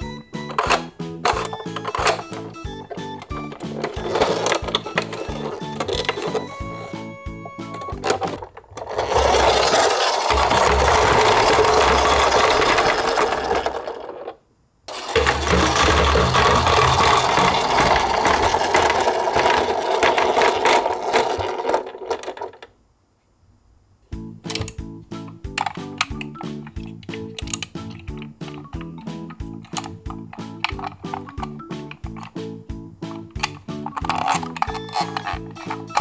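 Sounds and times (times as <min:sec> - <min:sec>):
toy truck whirring with gear rattle: 0:00.4 - 0:22.7, 0:29.6 - 0:32.4, 0:33.1 - 0:36.0
toy rolling on wooden ramp: 0:00.5 - 0:22.7, 0:33.1 - 0:36.0.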